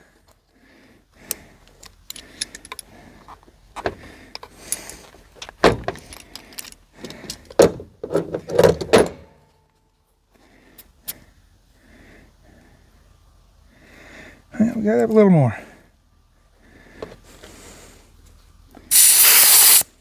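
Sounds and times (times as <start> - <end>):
tools clunking: 1.6 - 9.6.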